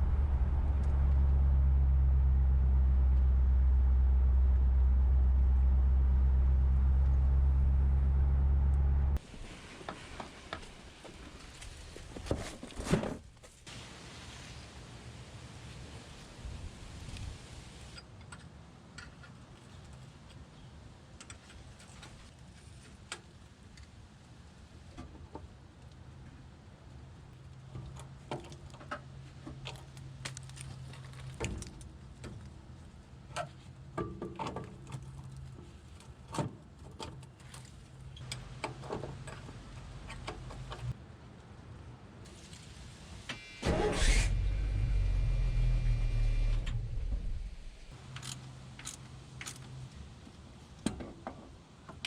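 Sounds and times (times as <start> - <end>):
faint low hum: 0.0 - 9.2.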